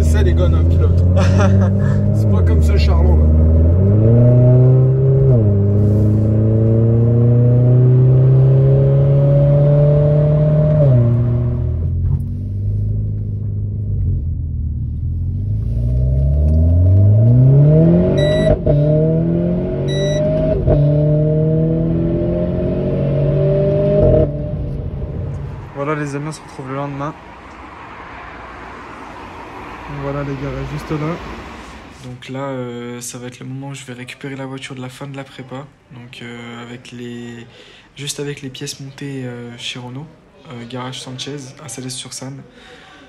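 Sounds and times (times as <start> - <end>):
car engine accelerating through gears: 0.0 - 25.7.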